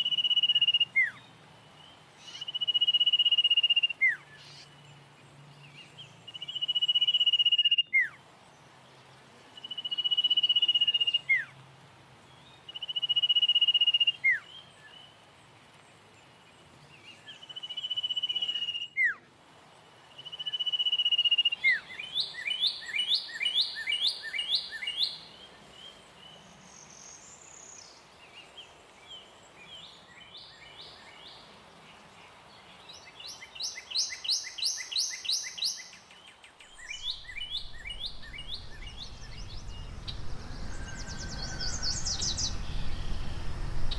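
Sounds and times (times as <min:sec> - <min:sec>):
bird chirping trills: 0:33.0 - 0:43.9
bird whistle with downward slur: 0:36.8 - 0:43.9.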